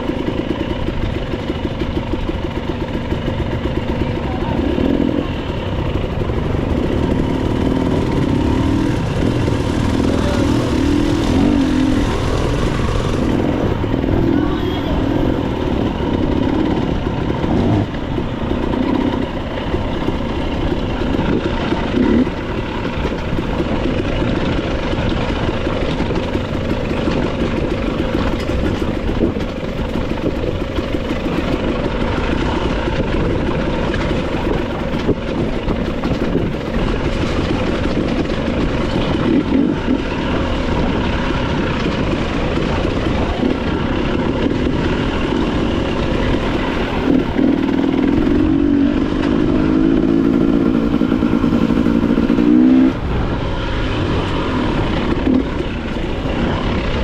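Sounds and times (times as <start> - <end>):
motorcycle engine running: 0.0 - 57.0
road noise: 0.0 - 57.0.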